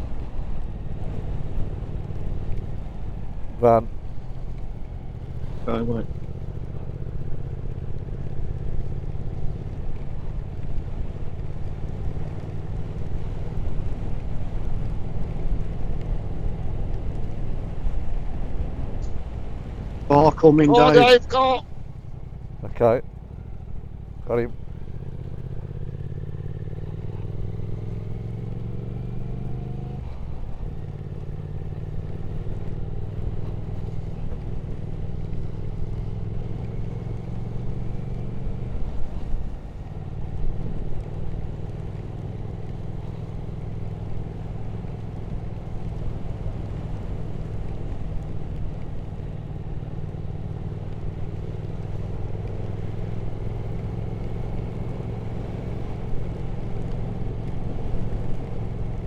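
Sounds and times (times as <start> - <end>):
motorcycle engine: 0.0 - 59.0
road noise: 0.0 - 59.0
wind noise: 13.0 - 22.8.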